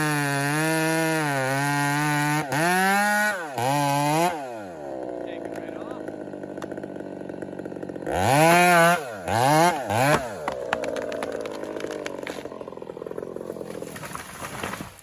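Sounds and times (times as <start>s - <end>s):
chainsaw idling and revving: 0.0s - 15.0s
sharp cracks: 5.2s - 8.0s, 9.6s - 15.0s.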